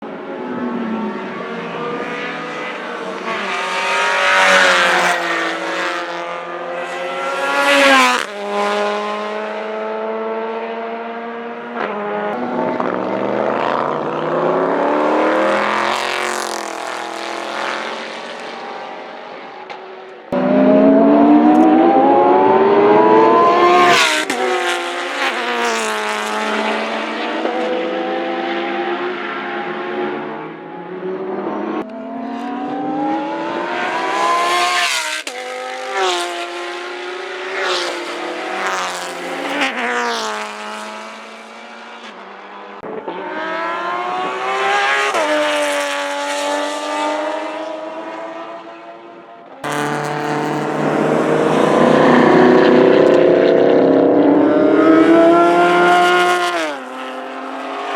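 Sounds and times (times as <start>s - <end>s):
race car engines accelerating: 0.0s - 57.9s
loud car engine revving: 20.3s - 29.0s, 49.6s - 57.9s.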